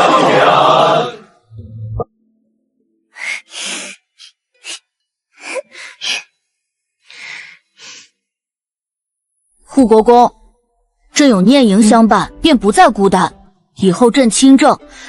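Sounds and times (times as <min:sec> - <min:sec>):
person breathing noisily: 0:03.1 - 0:08.3.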